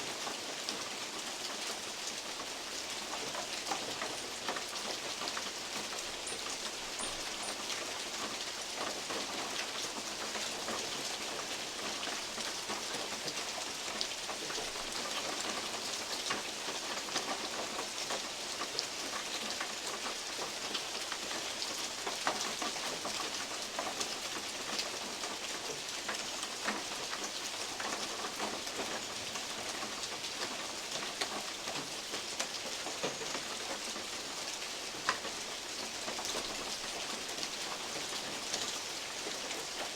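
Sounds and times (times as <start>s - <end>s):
rainfall hiss: 0.0s - 39.9s.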